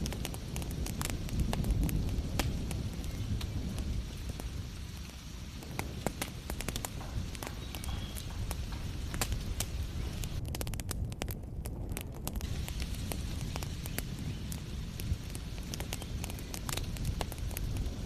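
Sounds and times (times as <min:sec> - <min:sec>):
wood fire crackling: 0:00.0 - 0:18.0
low rumble: 0:05.4 - 0:18.0.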